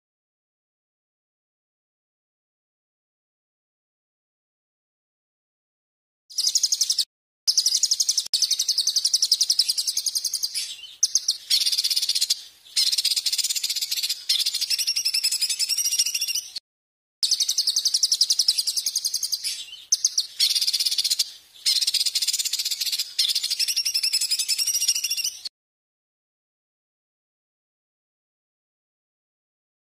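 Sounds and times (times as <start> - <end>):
songbird trilling: 6.3 - 16.6, 17.2 - 25.5.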